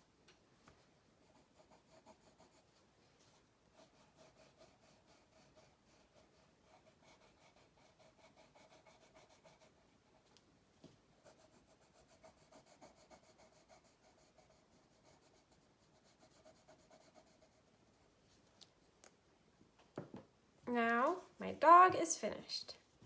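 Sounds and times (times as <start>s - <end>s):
pencil scratching on paper: 1.2s - 10.2s, 11.2s - 18.0s.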